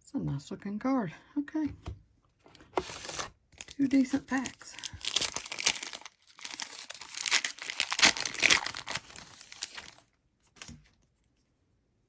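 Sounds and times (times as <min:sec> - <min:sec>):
wrapper tearing and crinkling: 0:02.8 - 0:10.7.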